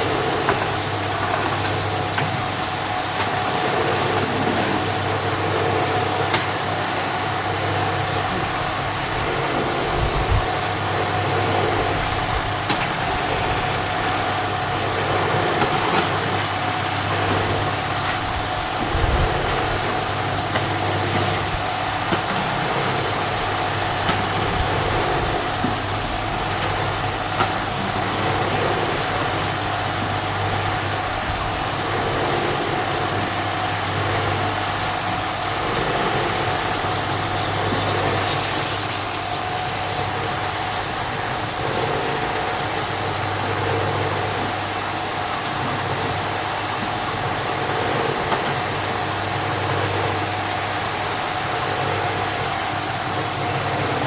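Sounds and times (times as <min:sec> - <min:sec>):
motor humming: 0:00.0 - 0:51.5.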